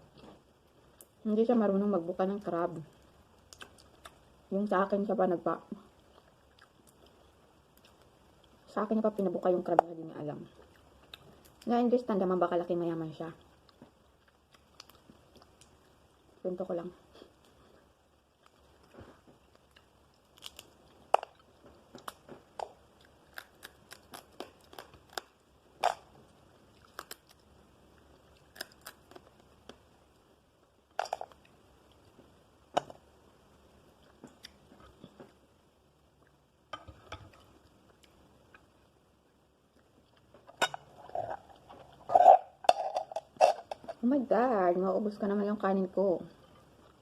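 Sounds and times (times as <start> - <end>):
crab shell crunching under teeth: 19.5 - 26.1, 26.8 - 27.4, 28.3 - 29.8.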